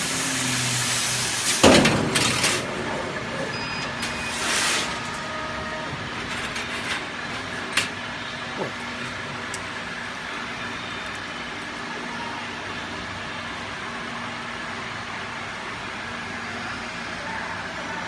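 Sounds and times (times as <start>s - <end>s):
laser cutter hissing and humming: 0.0s - 6.2s.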